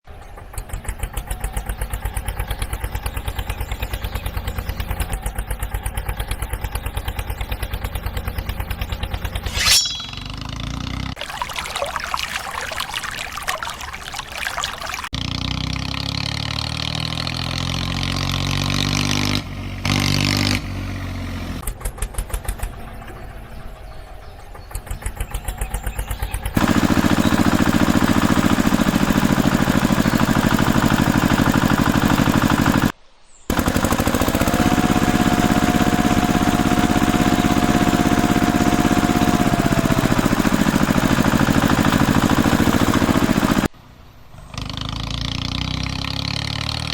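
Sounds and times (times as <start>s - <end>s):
engine revving and running: 0.6s - 9.5s, 15.1s - 22.7s, 24.8s - 32.9s, 33.5s - 43.7s, 44.5s - 46.9s
steady tone: 9.5s - 10.5s.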